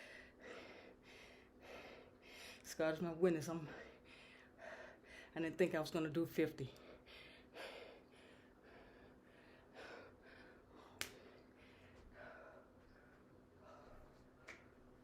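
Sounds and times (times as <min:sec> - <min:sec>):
heavy breathing: 0:00.0 - 0:02.7, 0:03.7 - 0:05.4, 0:06.7 - 0:14.4.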